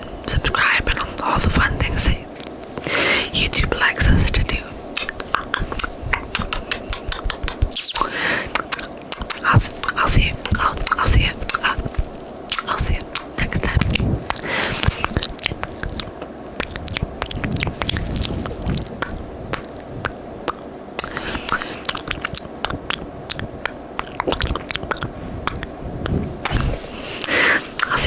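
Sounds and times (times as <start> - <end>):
breathy hisses: 2.8 - 3.4, 7.8 - 8.6, 14.4 - 15.2, 21.0 - 21.9, 26.2 - 27.9
tongue and lip clicks: 5.0 - 28.0.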